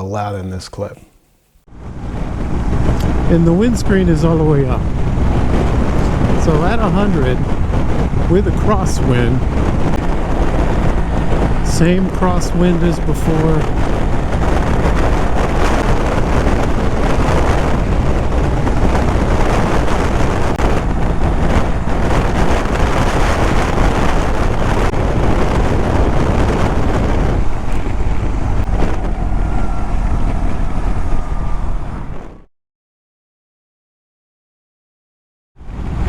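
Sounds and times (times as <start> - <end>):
motorcycle engine cruising: 1.7 - 32.4
wind rushing over microphone: 1.7 - 32.5, 35.6 - 36.0.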